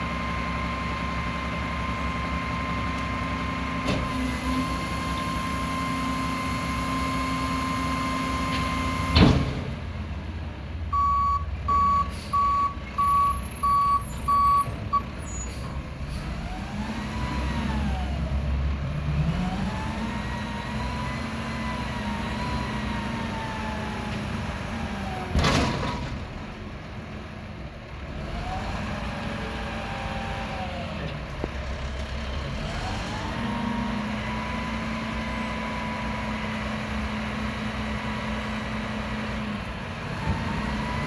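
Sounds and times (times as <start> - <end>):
diesel engine whining: 0.0 - 41.0
reversing alarm beeps: 10.9 - 15.4.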